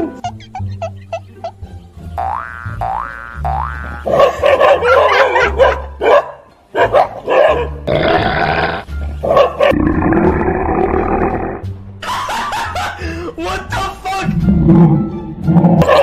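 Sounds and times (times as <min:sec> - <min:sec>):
background music: 0:00.0 - 0:16.0
dogs barking: 0:03.9 - 0:07.9, 0:09.2 - 0:09.8, 0:15.8 - 0:16.0.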